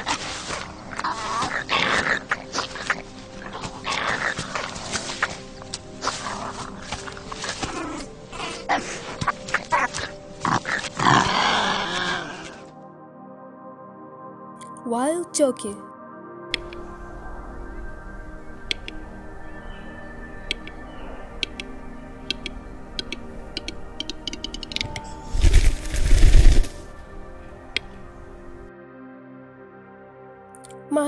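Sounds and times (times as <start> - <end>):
soft ambient music: 0.0 - 31.0
turkey clicking notes: 16.6 - 16.9, 18.6 - 19.1, 20.4 - 26.6.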